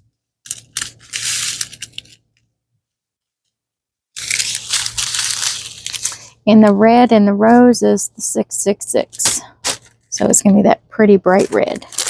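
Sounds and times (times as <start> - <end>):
plastic packaging crinkling: 0.4 - 2.2, 4.2 - 6.4, 9.2 - 10.2, 11.3 - 12.0.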